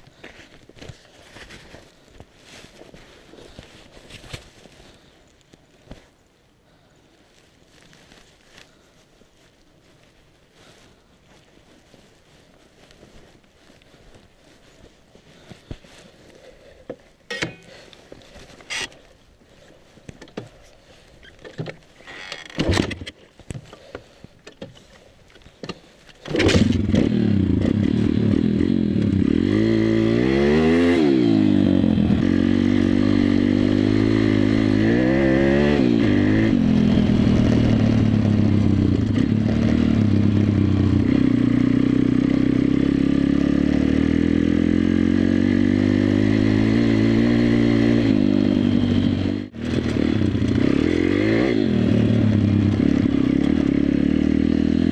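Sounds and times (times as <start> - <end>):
motorbike engine revving: 26.2 - 54.9.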